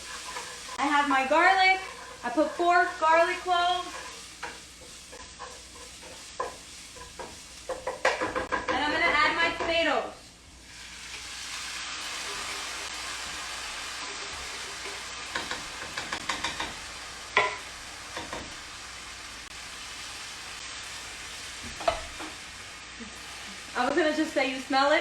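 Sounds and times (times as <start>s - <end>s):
tomatoes sizzling in a hot pan: 0.0s - 25.0s
utensil knocking against a pan: 6.0s - 9.8s, 15.3s - 16.8s, 18.2s - 18.5s, 21.7s - 22.3s.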